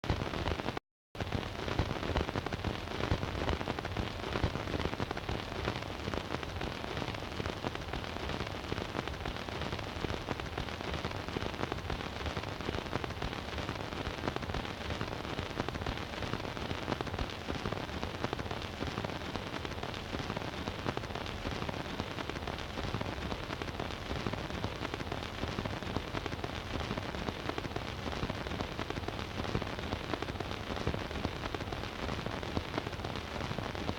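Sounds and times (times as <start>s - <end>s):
record surface hiss and crackle: 0.0s - 33.9s.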